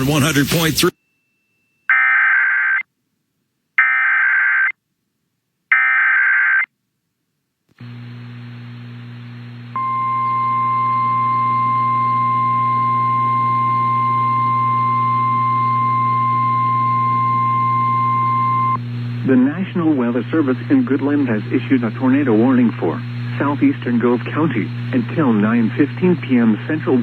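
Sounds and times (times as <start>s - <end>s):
loud steady attention tone: 7.8s - 27.0s
low hum: 7.8s - 27.0s.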